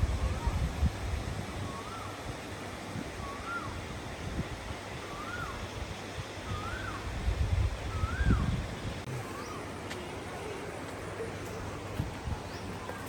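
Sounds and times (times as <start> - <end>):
wind rumbling on microphone: 0.0 - 9.2, 11.7 - 12.9
bird whistling: 3.2 - 3.8, 5.1 - 5.6, 6.5 - 7.0, 7.9 - 8.5.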